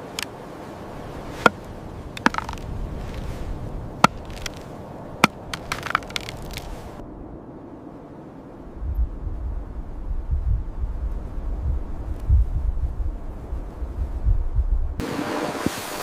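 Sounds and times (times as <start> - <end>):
rushing wind noise: 0.0 - 16.0
sharp chopping knocks: 2.2 - 3.2, 4.0 - 4.6, 5.2 - 6.7.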